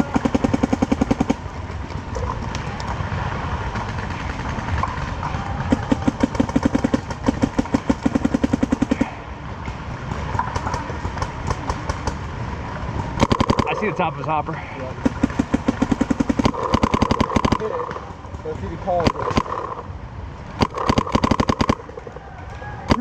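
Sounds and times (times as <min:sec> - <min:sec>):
paintball marker rapid firing: 0:00.0 - 0:01.5, 0:03.7 - 0:09.2, 0:10.1 - 0:12.2, 0:13.2 - 0:13.9, 0:15.0 - 0:18.1, 0:18.9 - 0:19.8, 0:20.6 - 0:22.1.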